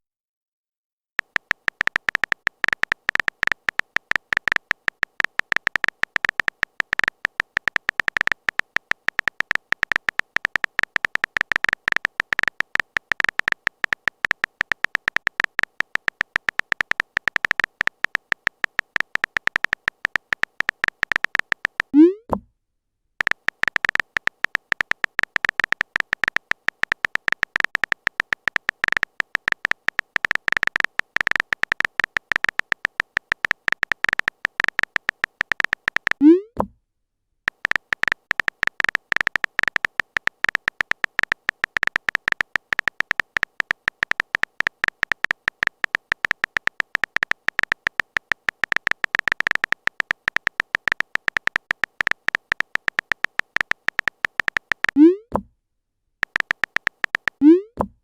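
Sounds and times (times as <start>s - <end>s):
phone keyboard typing ticks: 1.2s - 22.3s, 23.2s - 36.6s, 37.4s - 55.4s, 56.2s - 57.9s.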